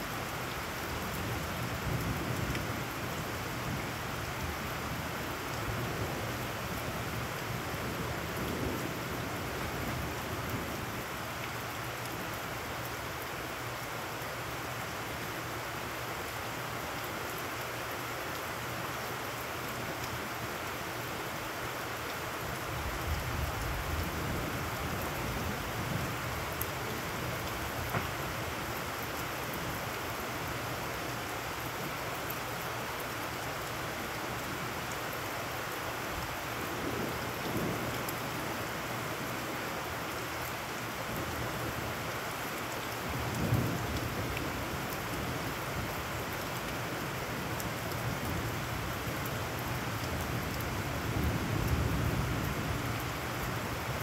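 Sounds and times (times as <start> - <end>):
heavy rain on puddles: 0.0 - 54.0.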